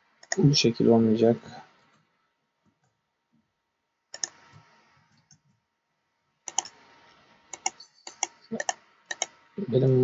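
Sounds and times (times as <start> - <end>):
computer mouse clicking: 0.2 - 0.4, 4.1 - 5.6, 6.4 - 6.9, 7.5 - 9.4.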